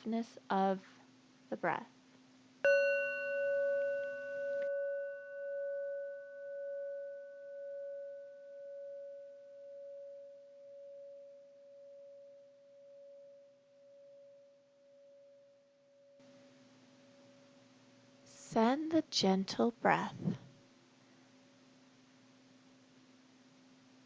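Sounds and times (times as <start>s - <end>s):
sound bowl ringing: 2.6s - 18.3s.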